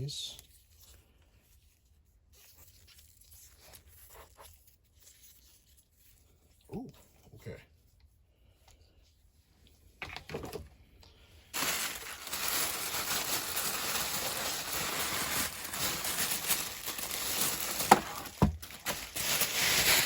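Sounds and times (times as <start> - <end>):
packing paper crinkling: 11.5 - 20.0.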